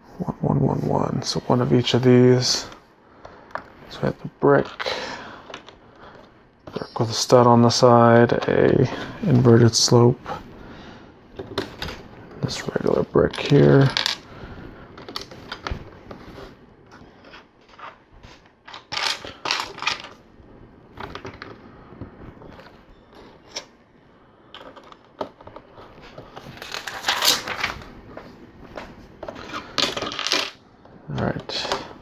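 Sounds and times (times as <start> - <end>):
plastic bricks clicking and clattering: 13.3 - 14.2, 18.6 - 20.2, 29.3 - 30.6.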